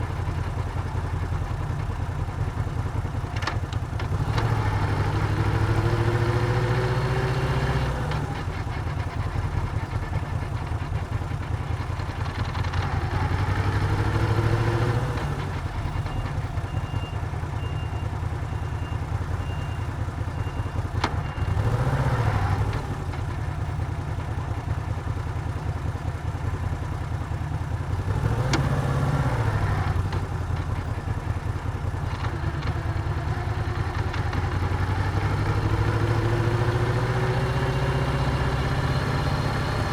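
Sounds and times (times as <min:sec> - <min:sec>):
motorcycle engine revving: 0:31.4 - 0:39.9.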